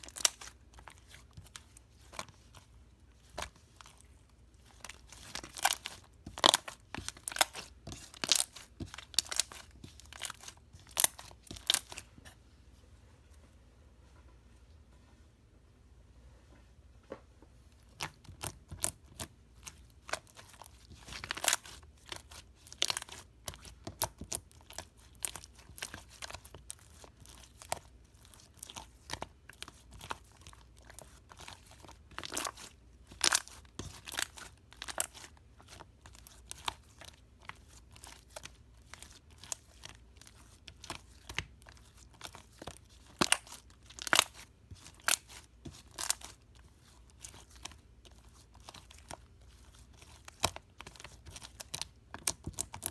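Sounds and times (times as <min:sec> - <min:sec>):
slime crackling and popping: 0:17.9 - 0:52.9.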